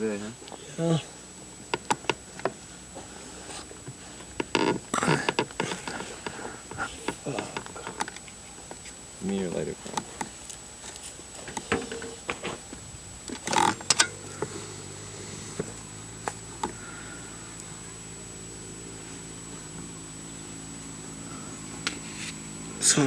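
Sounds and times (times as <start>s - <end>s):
engine running: 0.0s - 23.0s
rustle: 0.0s - 23.0s.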